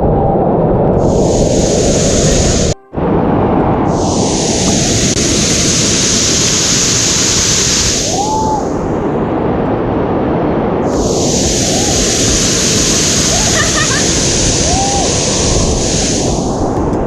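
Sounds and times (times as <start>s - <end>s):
waterfall rushing water: 3.9s - 9.0s, 10.9s - 16.9s.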